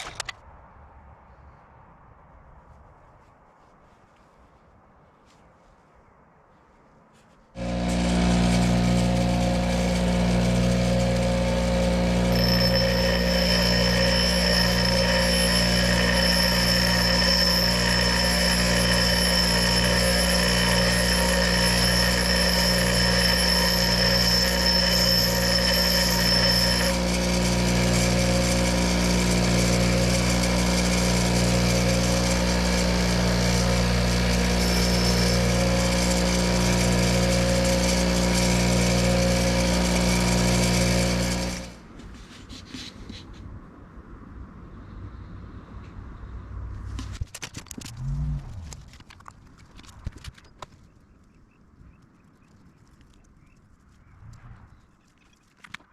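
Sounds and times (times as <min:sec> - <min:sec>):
power tool motor running: 0:07.6 - 0:41.8
high grinding whine: 0:07.6 - 0:41.9.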